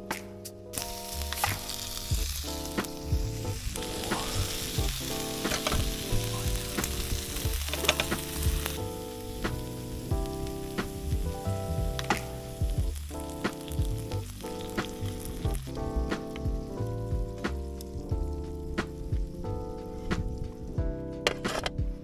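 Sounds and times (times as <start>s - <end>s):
soft background music: 0.0s - 22.0s
food sizzling in a pan: 0.8s - 17.0s
stirring clicks: 6.8s - 8.8s.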